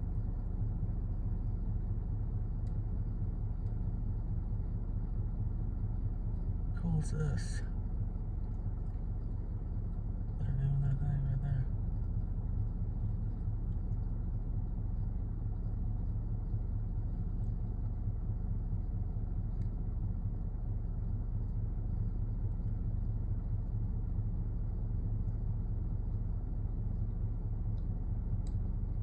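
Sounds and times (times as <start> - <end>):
steady low rumble: 0.0 - 29.0
faint ticks: 2.3 - 4.1, 11.8 - 29.0.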